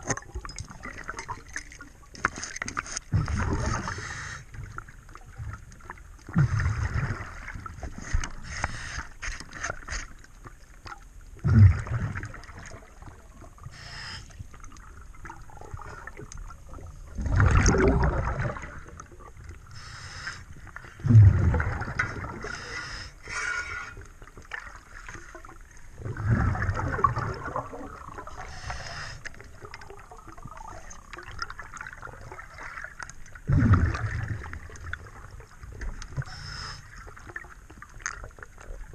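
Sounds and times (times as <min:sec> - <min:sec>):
exhaled bubbles gurgling: 0:00.0 - 0:09.0, 0:10.8 - 0:38.9
regulator breathing noise: 0:08.4 - 0:09.4, 0:13.7 - 0:14.4, 0:19.7 - 0:20.6, 0:22.4 - 0:24.0, 0:28.4 - 0:29.4, 0:36.2 - 0:37.0.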